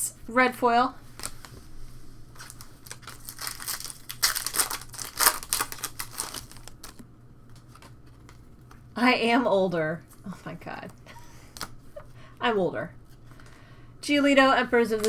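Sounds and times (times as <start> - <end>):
card packaging crinkling: 1.1 - 1.7, 2.3 - 8.9.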